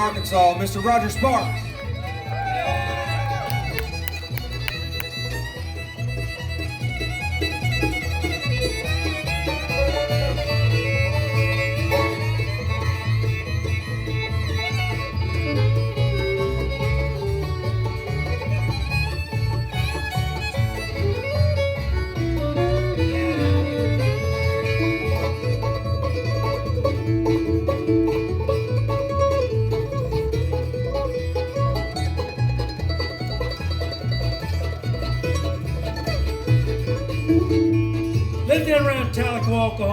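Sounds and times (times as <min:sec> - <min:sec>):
banjo: 0:00.0 - 0:39.9
fiddle melody: 0:00.0 - 0:39.9
guitar: 0:00.0 - 0:39.9
bass rhythm: 0:03.1 - 0:07.5.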